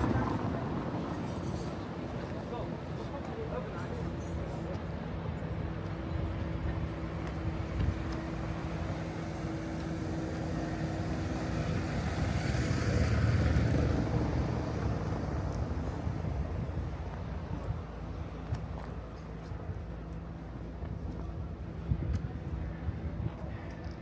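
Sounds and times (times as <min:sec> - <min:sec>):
steady engine hum: 0:00.0 - 0:24.0
vehicle passing: 0:06.6 - 0:16.9.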